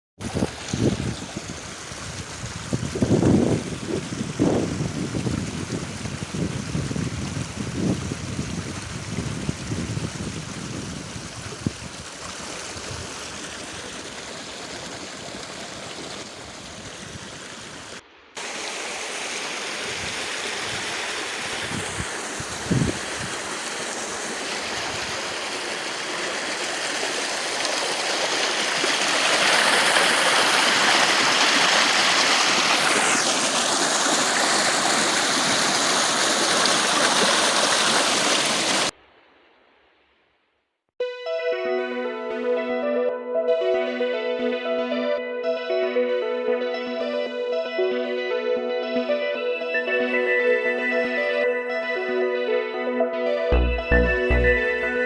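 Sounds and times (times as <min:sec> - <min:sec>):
river water rushing: 0:12.0 - 0:38.9.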